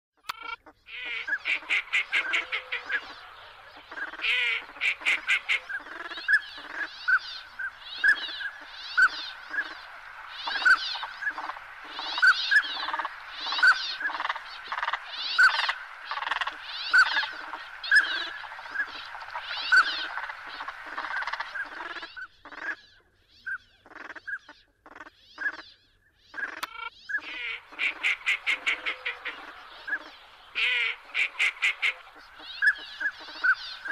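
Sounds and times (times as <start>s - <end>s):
bird calling: 0.2s - 33.9s
fast chattering bird notes: 0.3s - 9.8s, 10.4s - 22.8s.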